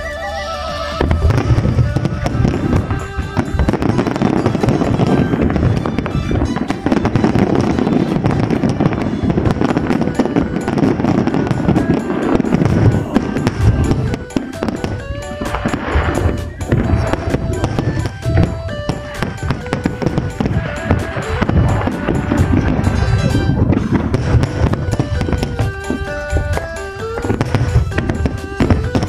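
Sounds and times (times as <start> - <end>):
music playing: 0.0 - 29.0
fireworks crackling and banging: 0.2 - 29.0.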